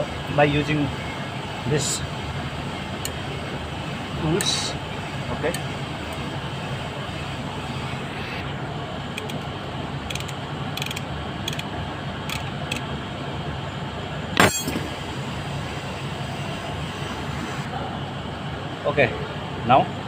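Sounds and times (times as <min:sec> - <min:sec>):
low background hum: 0:00.0 - 0:20.0
metal tools clicking on engine: 0:03.0 - 0:03.2, 0:09.2 - 0:12.9, 0:14.4 - 0:14.9
rasping metal clank: 0:14.4 - 0:14.9.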